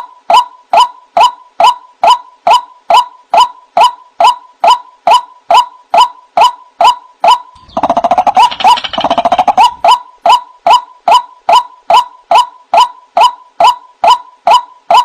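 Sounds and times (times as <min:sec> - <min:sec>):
waterhen calling: 0:07.6 - 0:10.0.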